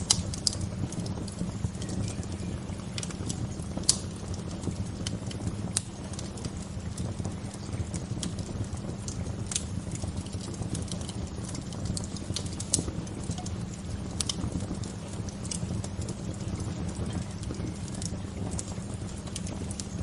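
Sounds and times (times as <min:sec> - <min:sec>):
bonfire popping and snapping: 0:00.0 - 0:20.0
low rumble of fire: 0:00.0 - 0:20.0.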